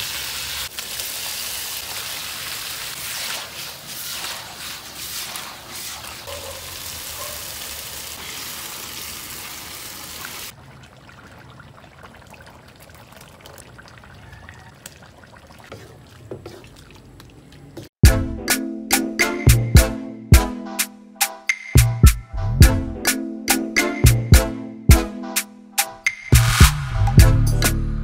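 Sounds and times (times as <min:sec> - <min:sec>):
food sizzling in a wok: 0:00.0 - 0:10.5
stew simmering: 0:00.7 - 0:18.0.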